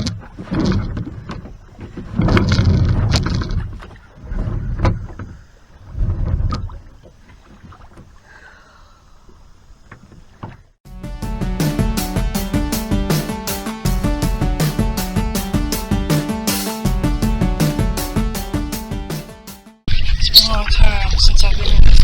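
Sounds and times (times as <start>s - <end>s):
kayak paddle splashing water: 0.0s - 10.8s
music: 10.9s - 19.9s.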